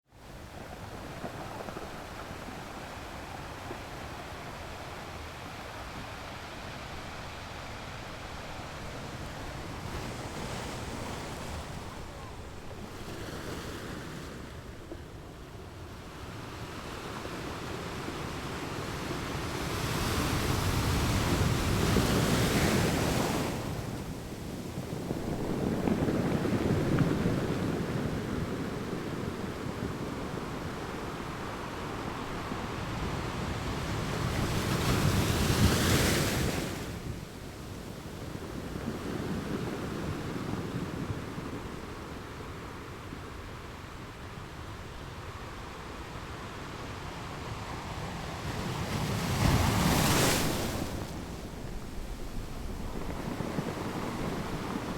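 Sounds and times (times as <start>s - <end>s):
ocean waves crashing on rocks: 47.8s - 54.9s.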